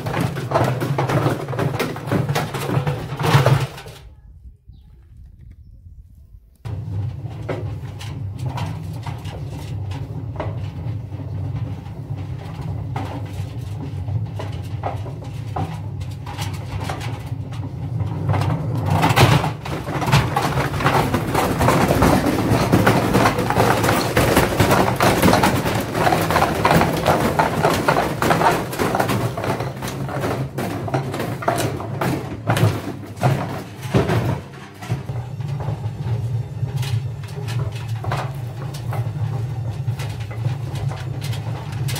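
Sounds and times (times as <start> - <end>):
bricks banging in drum: 0.0 - 3.9, 18.0 - 41.9.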